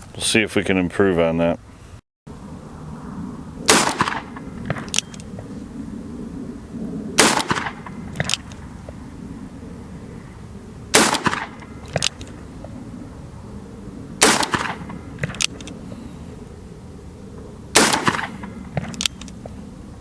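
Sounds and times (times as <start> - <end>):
revolver shots: 3.6 - 5.6, 7.2 - 9.0, 10.9 - 12.8, 14.2 - 15.4, 17.8 - 19.0.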